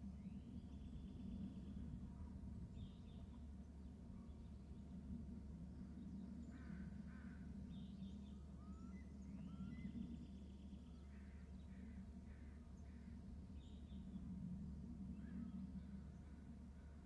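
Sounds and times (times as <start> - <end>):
steady low hum: 0.0 - 17.0
faint bird calls: 6.0 - 14.3.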